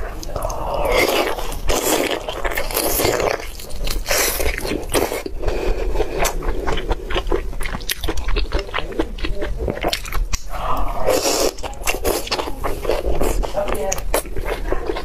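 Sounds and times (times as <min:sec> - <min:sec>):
wet chewing and smacking: 0:00.0 - 0:15.0.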